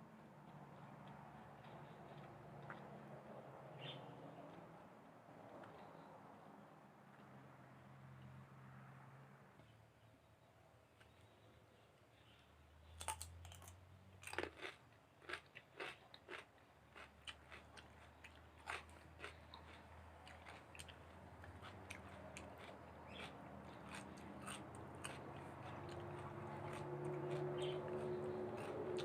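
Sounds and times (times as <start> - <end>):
chewing and biting meat: 13.0 - 29.0.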